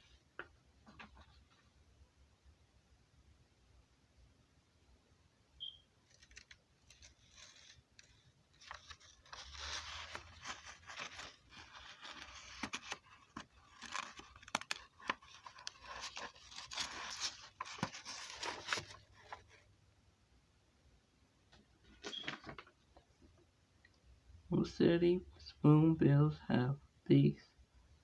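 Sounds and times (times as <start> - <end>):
rustling and scraping: 6.1 - 19.7.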